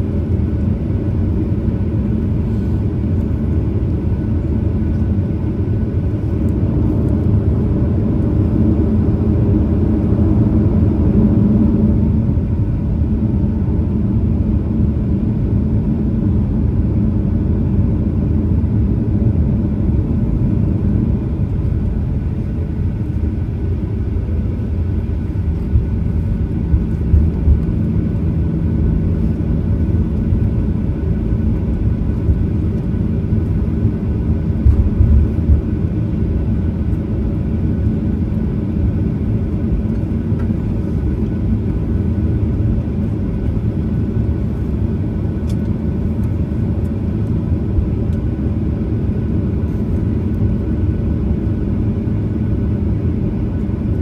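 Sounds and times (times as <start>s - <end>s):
airplane cabin engine rumble: 0.0s - 54.0s
low thumps: 25.7s - 27.9s.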